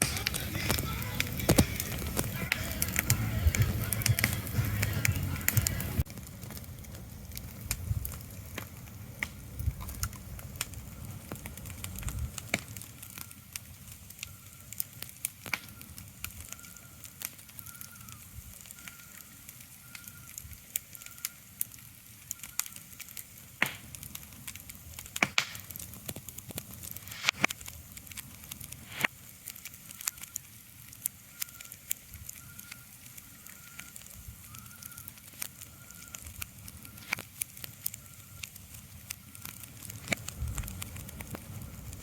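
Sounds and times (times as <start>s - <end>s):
crackling with sharp pops: 0.0s - 42.0s
low rumble: 0.1s - 11.0s.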